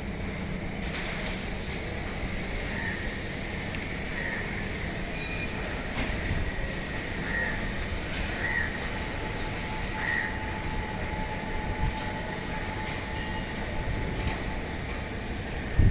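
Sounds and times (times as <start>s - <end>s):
faint machine whines: 0.0s - 15.9s
industrial machinery rumble: 0.0s - 15.9s
short squeaks: 0.9s - 10.1s.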